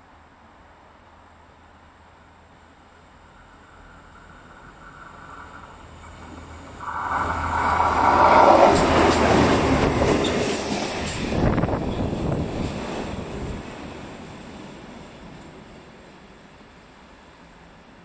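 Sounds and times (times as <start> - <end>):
locomotive passing at speed: 3.8 - 15.3
wheels rattling over rail joints: 4.5 - 16.0.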